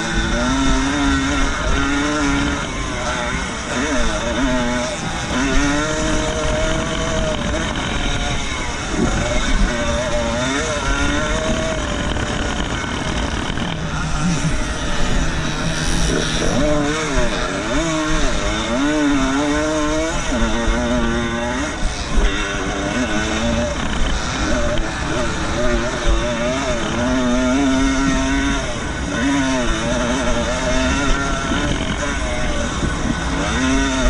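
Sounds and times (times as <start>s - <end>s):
motorcycle engines revving: 0.0s - 34.0s.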